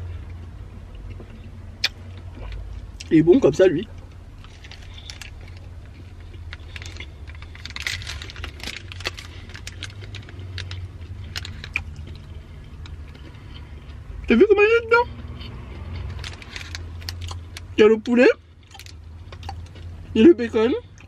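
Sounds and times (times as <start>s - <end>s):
biting and chewing food: 0.2s - 14.3s, 15.1s - 20.2s
wet mouth clicks: 1.8s - 2.6s
paper wrapper crinkling: 6.5s - 12.2s, 16.2s - 17.4s.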